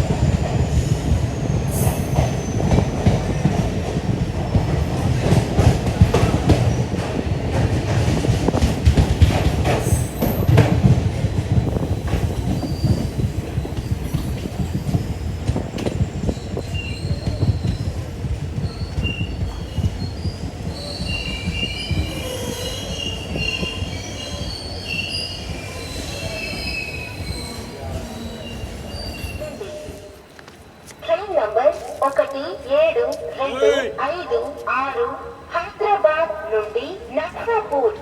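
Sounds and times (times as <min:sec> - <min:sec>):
train coaches rumbling on rails: 0:00.0 - 0:38.0
steel wheels squealing: 0:00.6 - 0:02.8, 0:12.5 - 0:13.1, 0:16.3 - 0:18.0, 0:18.6 - 0:30.2.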